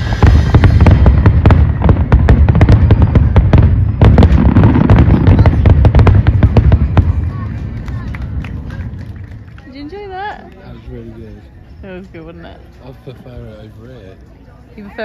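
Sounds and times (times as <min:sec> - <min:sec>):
low rumble: 0:00.0 - 0:10.2
firework bangs and cracks: 0:00.0 - 0:10.6.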